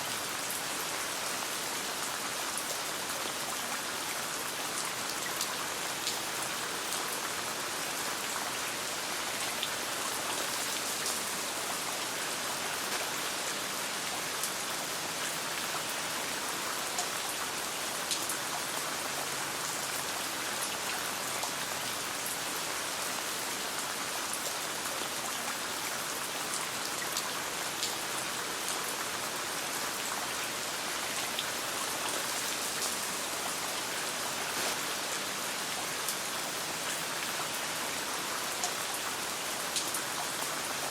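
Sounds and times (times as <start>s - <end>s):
rain pattering: 8.1s - 23.0s, 23.7s - 40.9s.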